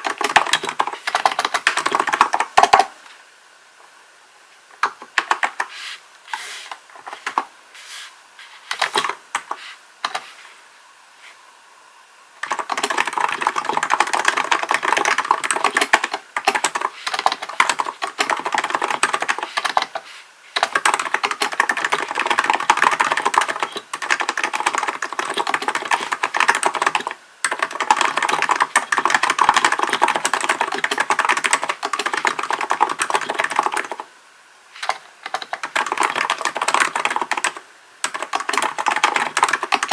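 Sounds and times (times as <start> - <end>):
typing on keyboard: 0.0 - 3.0, 4.8 - 5.7, 12.4 - 20.0, 20.6 - 34.1, 34.8 - 39.9.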